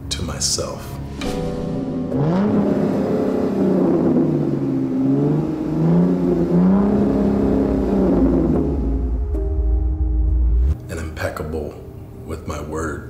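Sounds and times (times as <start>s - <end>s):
car engine revving: 1.4s - 10.8s.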